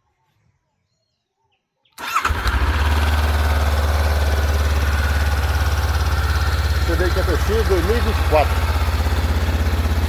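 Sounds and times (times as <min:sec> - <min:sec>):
electric starter cranking: 0:02.0 - 0:10.0
motorcycle engine idling: 0:02.0 - 0:10.0.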